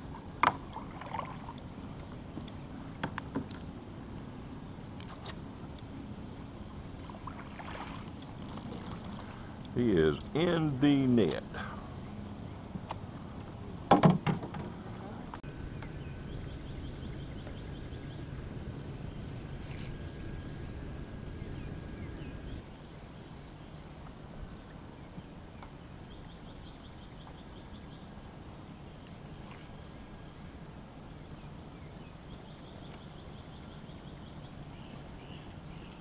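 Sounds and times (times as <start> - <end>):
insects droning: 0.0 - 36.0
insects chirping rapidly: 15.5 - 36.0.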